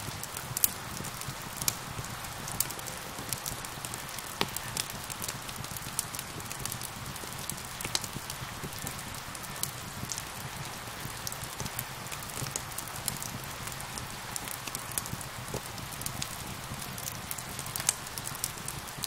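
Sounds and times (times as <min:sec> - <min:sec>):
steady rain hiss: 0:00.0 - 0:19.0
wood fire crackling: 0:00.0 - 0:19.0.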